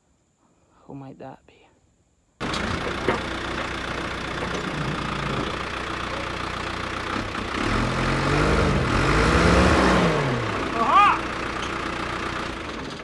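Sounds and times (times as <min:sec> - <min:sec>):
vehicle engine idling: 0:02.4 - 0:13.0.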